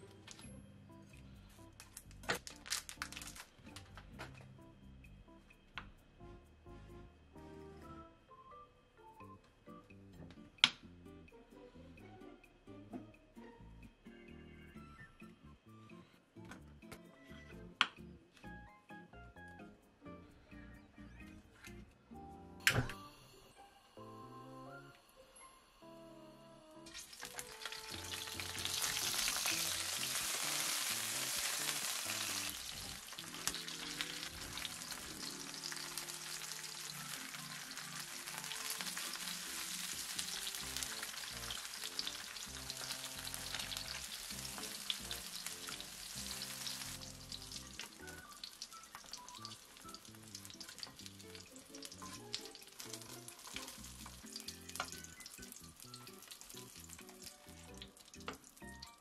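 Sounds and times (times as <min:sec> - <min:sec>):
background music: 0:00.0 - 0:59.0
meat sizzling in oil: 0:26.9 - 0:59.0.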